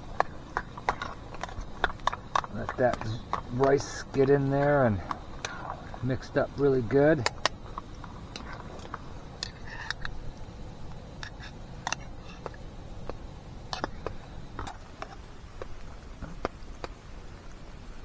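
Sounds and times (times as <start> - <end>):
utensil scraping metal pot: 0.0 - 10.2, 10.9 - 12.6
low steady background noise: 0.0 - 18.0.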